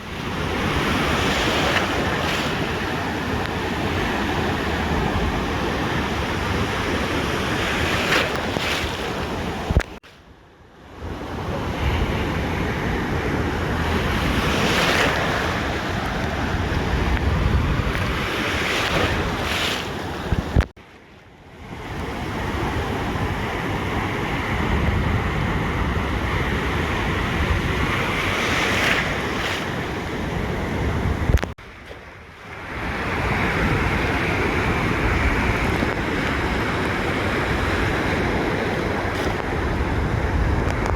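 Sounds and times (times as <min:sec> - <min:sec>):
ocean surf washing onto beach: 0:00.0 - 0:10.2, 0:10.9 - 0:20.7, 0:21.5 - 0:40.9
wind rumbling on microphone: 0:00.0 - 0:20.7, 0:21.6 - 0:40.9
click: 0:31.3 - 0:31.5, 0:40.7 - 0:40.9.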